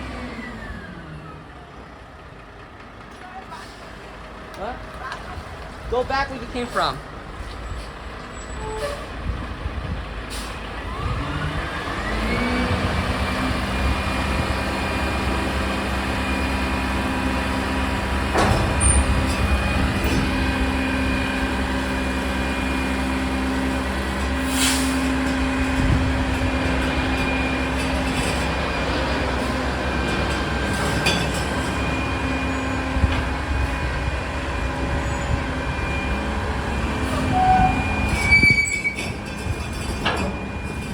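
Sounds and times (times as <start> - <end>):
diesel truck engine revving: 9.1 - 38.4
short air hisses: 24.5 - 25.0.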